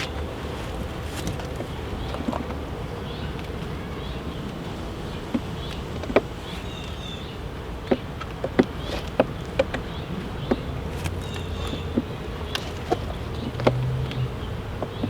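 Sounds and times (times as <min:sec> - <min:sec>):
honey bees buzzing: 0:00.0 - 0:15.0.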